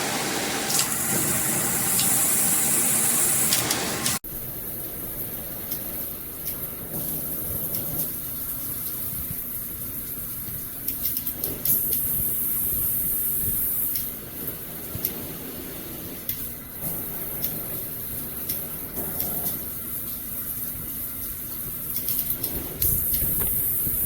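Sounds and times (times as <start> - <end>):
water spraying from shower head: 0.0 - 4.2.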